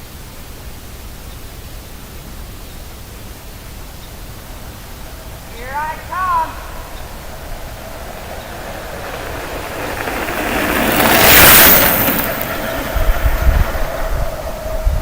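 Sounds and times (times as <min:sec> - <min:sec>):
wind buffeting microphone: 0:03.8 - 0:15.0
bicycle tyres whooshing past: 0:04.2 - 0:15.0.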